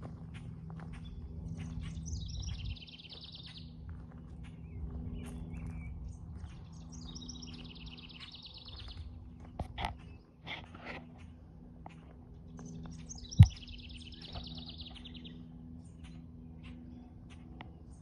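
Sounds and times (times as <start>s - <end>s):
low steady hum: 0.0s - 18.0s
songbird trilling: 1.6s - 3.8s, 12.7s - 15.4s.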